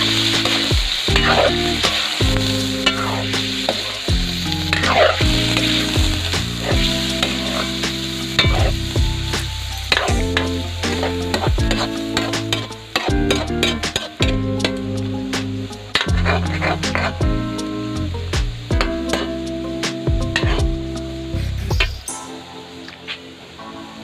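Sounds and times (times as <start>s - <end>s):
chicken sizzling in oil: 0.0s - 22.1s
background music: 0.0s - 24.0s.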